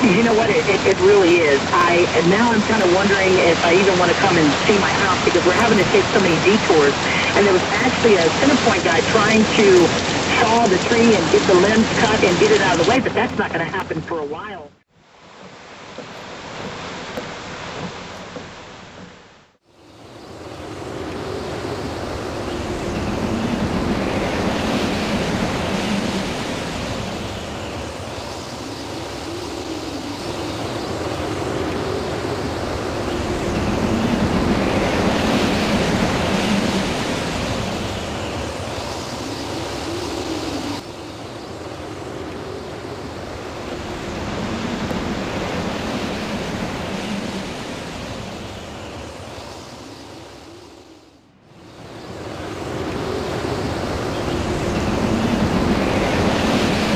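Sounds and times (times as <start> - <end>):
storm wind gusting: 0.0 - 14.6, 15.6 - 56.9
wind buffeting microphone: 29.0 - 40.9, 51.6 - 56.9.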